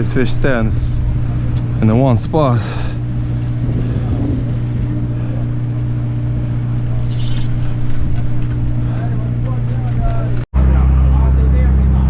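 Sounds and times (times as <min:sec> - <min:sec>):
wind noise on microphone: 0:00.0 - 0:02.1, 0:02.8 - 0:08.9
boat engine droning: 0:00.0 - 0:12.0.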